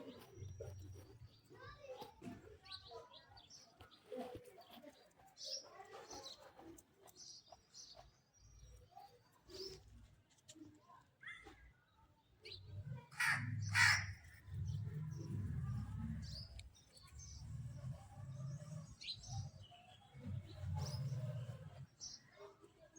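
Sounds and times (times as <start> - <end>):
birds chirping: 12.4 - 22.3
loud harsh bird calls: 13.1 - 14.5.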